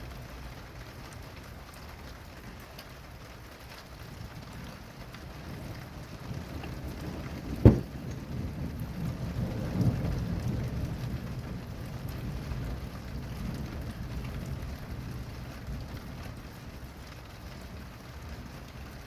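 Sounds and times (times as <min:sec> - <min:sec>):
steady rain: 0:00.0 - 0:19.0
thunder rolling: 0:05.6 - 0:15.3.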